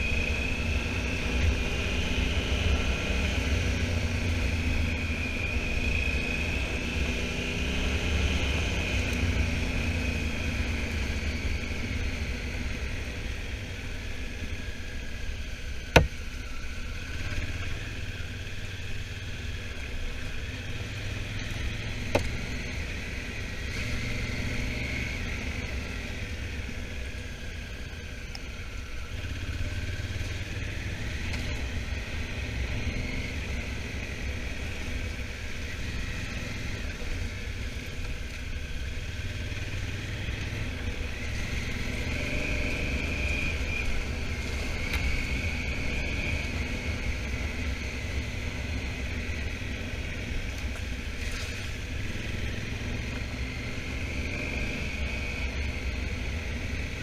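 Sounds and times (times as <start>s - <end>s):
motorcycle engine rumbling with whine: 0.0s - 57.0s.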